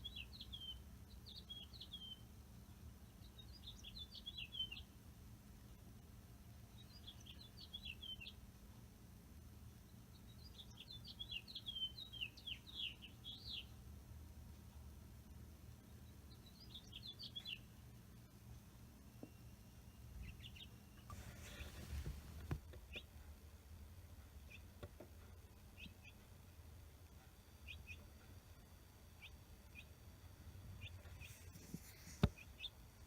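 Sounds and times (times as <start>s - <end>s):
finch singing: 0.0s - 2.2s, 3.2s - 4.8s, 6.8s - 8.4s, 10.2s - 13.7s, 16.0s - 17.7s, 20.0s - 23.1s.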